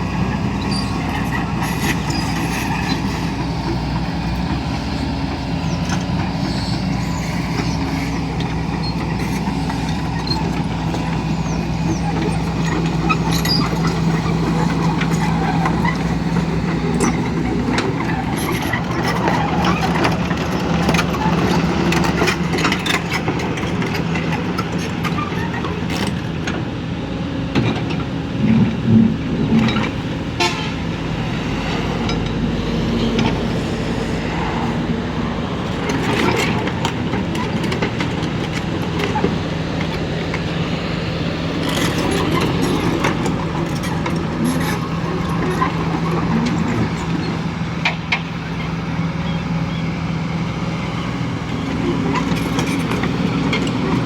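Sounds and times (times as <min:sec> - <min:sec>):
excavator diesel engine running: 0:00.0 - 0:54.0
short horn toots: 0:30.4 - 0:30.8.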